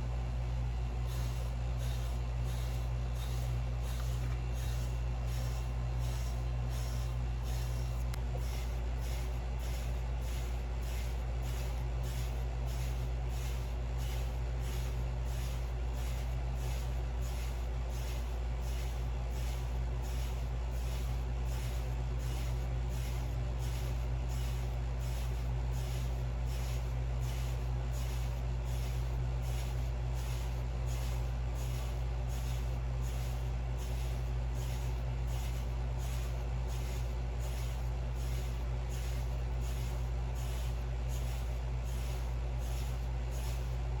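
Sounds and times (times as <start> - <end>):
steady low hum: 0.0 - 44.0
hair brush strokes: 1.1 - 43.6.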